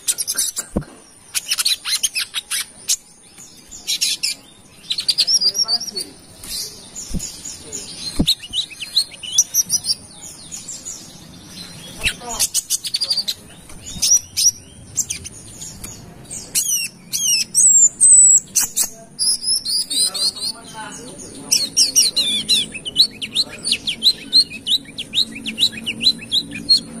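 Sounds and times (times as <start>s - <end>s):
bird singing high chirps: 0.0s - 27.0s.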